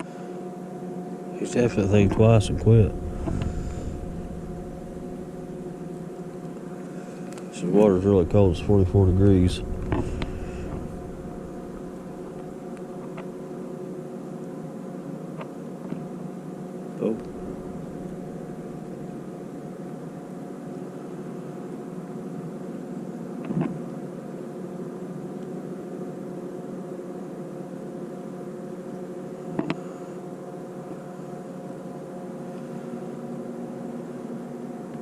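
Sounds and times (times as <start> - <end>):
engine drone: 1.4 - 13.3, 17.0 - 19.8.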